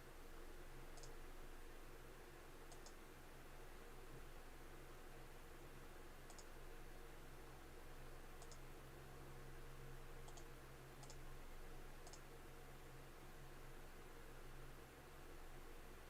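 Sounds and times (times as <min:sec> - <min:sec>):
low steady hum: 0:00.0 - 0:16.0
computer mouse clicking: 0:00.9 - 0:01.2, 0:02.7 - 0:03.0, 0:06.3 - 0:06.5, 0:08.4 - 0:08.6, 0:10.2 - 0:11.2, 0:12.0 - 0:12.3.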